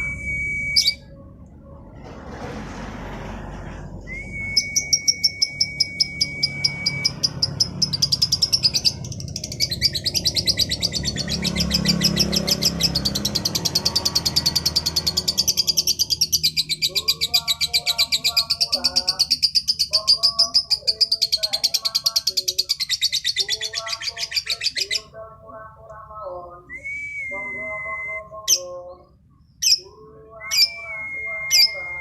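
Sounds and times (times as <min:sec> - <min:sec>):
high whistle-like tone: 0:00.0 - 0:01.2, 0:04.0 - 0:07.2
low background rumble: 0:00.0 - 0:20.0
lovebird chattering trill: 0:04.8 - 0:25.1.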